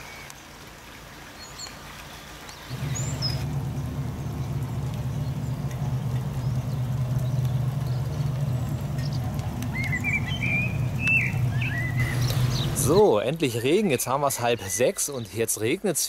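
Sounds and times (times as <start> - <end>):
light rain on a patio: 0.0 - 16.0
songbird chirping: 1.3 - 15.6
low hum: 2.7 - 13.0.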